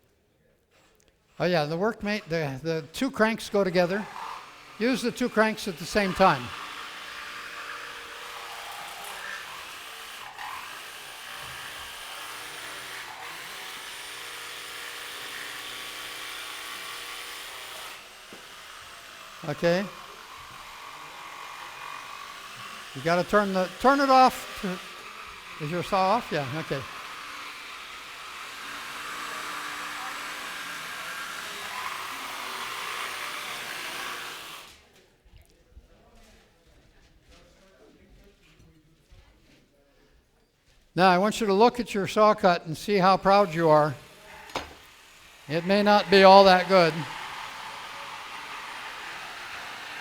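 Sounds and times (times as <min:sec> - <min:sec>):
jigsaws cutting wood: 0:02.0 - 0:34.9, 0:43.0 - 0:50.0.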